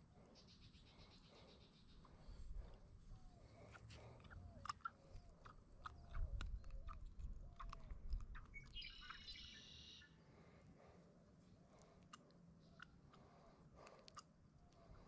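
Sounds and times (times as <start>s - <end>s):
bird chirping phrase: 8.4s - 10.2s.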